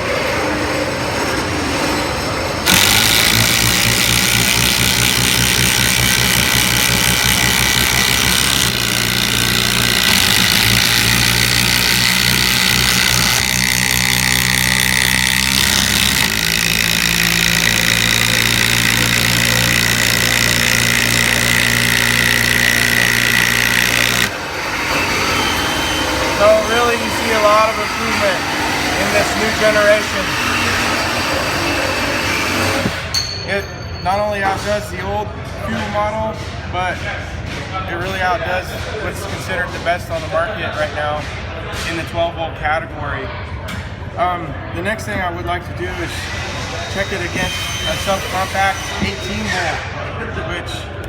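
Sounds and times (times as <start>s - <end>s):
impact drivers hammering screws: 2.7s - 24.4s, 31.8s - 33.1s.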